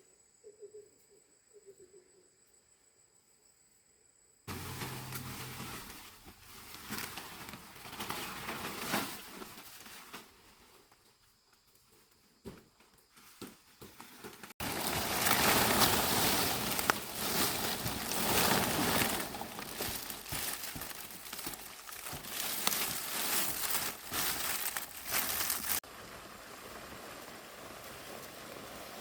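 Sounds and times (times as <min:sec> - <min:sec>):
leaves rustling and crackling: 0:04.5 - 0:11.0, 0:13.2 - 0:29.0.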